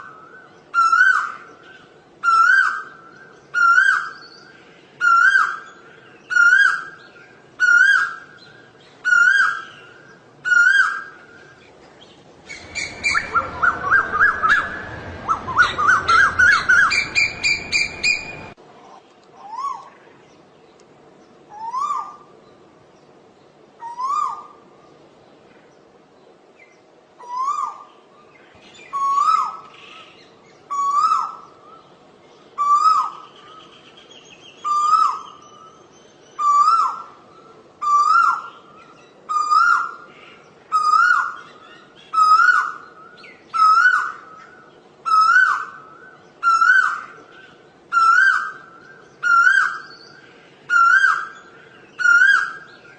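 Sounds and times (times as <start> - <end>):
koel rising calls: 12.4 - 18.6
rushing noise: 12.4 - 18.6
shrill rising bird notes: 12.4 - 18.6, 40.7 - 52.9.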